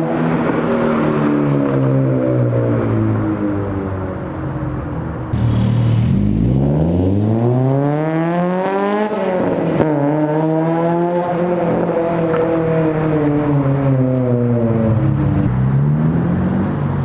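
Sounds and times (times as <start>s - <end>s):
car engine accelerating: 5.3s - 10.9s, 14.6s - 17.0s.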